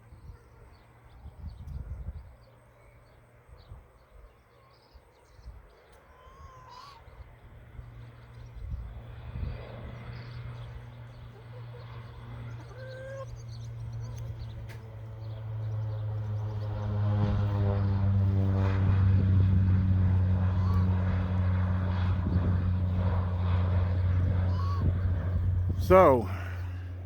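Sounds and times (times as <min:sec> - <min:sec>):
propeller airplane engine drone: 0:00.0 - 0:27.0.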